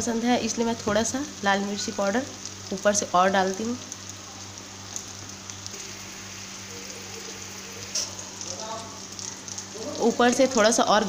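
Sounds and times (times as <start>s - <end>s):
vegetables sizzling in hot oil: 0.0s - 11.0s
low steady hum: 2.3s - 11.0s.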